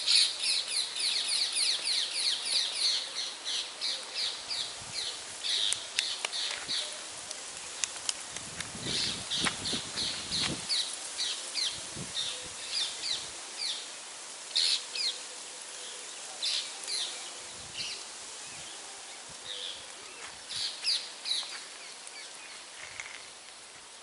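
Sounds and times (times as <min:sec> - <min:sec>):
birds chirping: 0:00.0 - 0:07.1
steady background hiss: 0:00.0 - 0:24.0.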